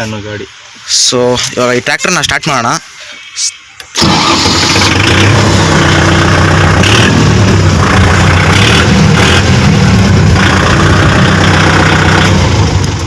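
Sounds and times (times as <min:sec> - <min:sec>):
tractor diesel engine idling: 0:04.0 - 0:13.0.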